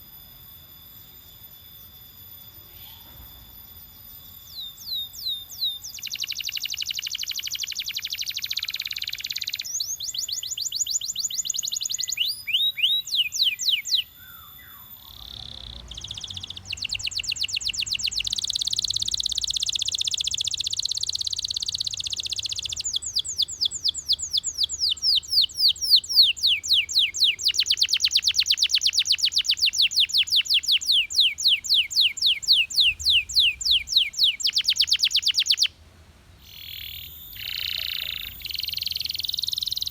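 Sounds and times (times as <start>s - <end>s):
canary singing trills: 0.0s - 35.7s, 36.4s - 39.9s.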